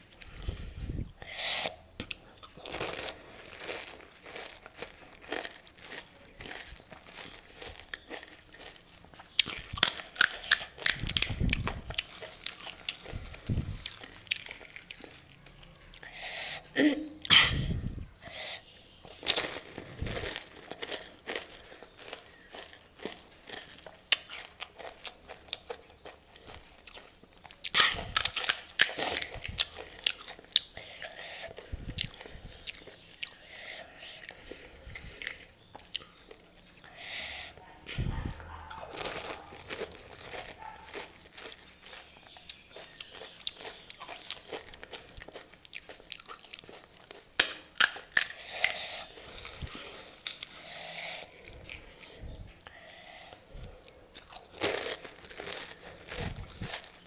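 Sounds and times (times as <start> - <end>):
chewing: 0.1 - 57.0
crisp shells cracking when bitten: 9.4 - 16.1, 26.9 - 30.7, 38.3 - 50.8.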